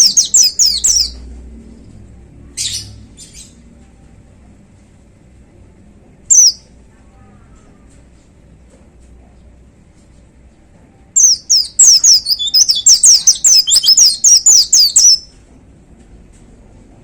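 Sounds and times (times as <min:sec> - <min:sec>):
bird singing whistled notes: 0:00.0 - 0:01.2, 0:06.3 - 0:06.6, 0:11.2 - 0:15.3.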